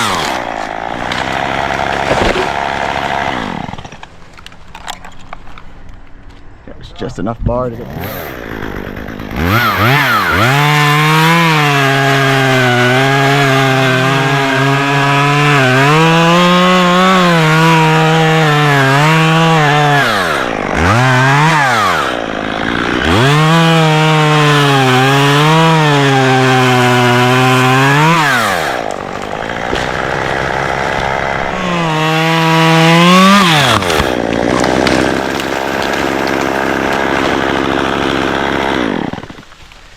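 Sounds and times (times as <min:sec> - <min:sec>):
chainsaw cutting wood: 0:00.0 - 0:05.6, 0:07.8 - 0:39.9.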